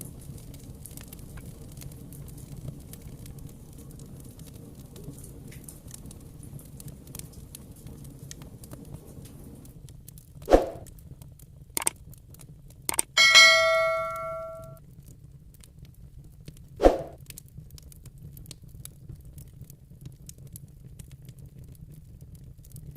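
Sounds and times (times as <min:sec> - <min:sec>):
wood fire crackling: 0:00.0 - 0:14.2, 0:15.5 - 0:22.9
ringing metallic clang: 0:13.2 - 0:14.8.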